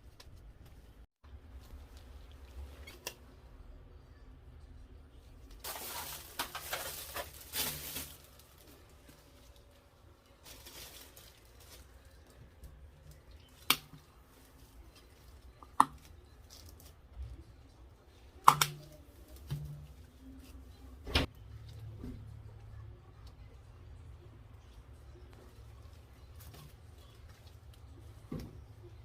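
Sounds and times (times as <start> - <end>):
rustling and scraping: 5.6 - 13.2.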